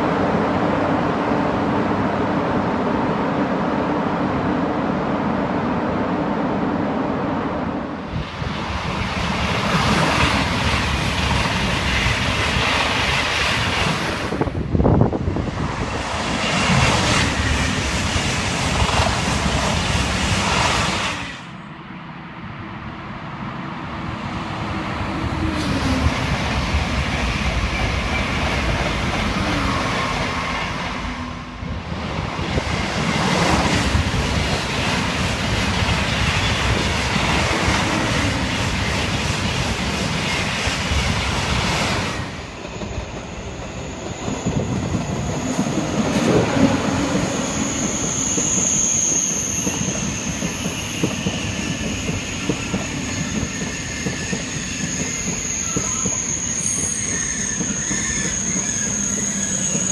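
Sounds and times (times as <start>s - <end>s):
high-speed train rushing past: 0.0s - 59.9s
train running past on track: 0.0s - 59.9s.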